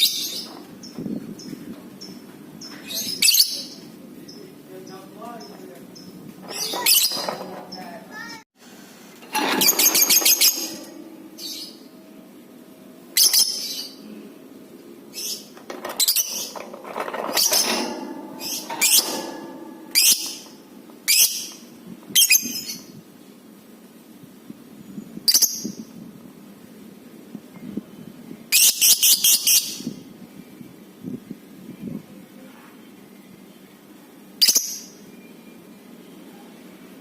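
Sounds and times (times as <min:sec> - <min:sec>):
bird chirping and screeching: 0:06.4 - 0:08.4, 0:09.4 - 0:11.9, 0:15.1 - 0:21.5.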